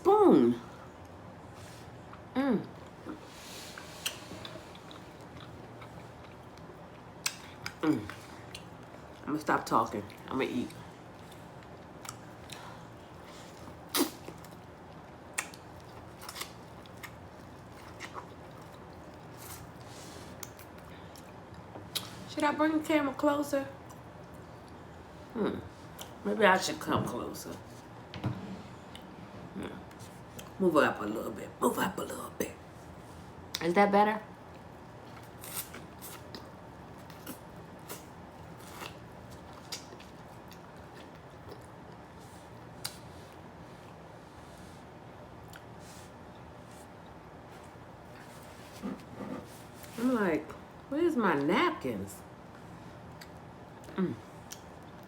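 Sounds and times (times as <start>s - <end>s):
low steady hum: 0.0s - 55.0s
chewing: 3.8s - 9.3s, 10.0s - 22.2s, 34.5s - 44.0s.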